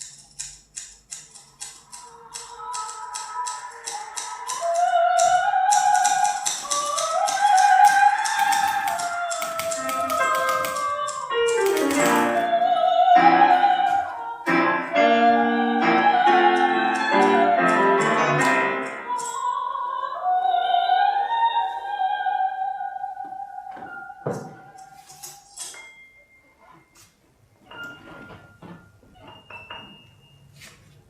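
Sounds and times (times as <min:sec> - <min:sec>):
soprano singing: 0:02.0 - 0:25.6
piano chords: 0:07.9 - 0:19.7.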